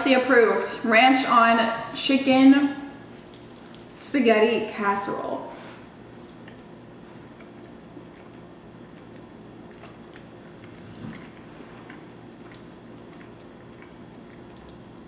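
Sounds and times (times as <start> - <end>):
steady low hum: 0.0 - 15.0
wet chewing and smacking: 2.9 - 4.0, 6.0 - 15.0.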